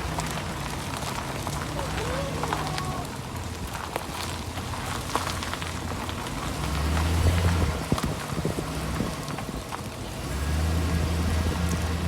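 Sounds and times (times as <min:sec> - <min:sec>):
pickup truck engine drone: 0:05.2 - 0:12.0.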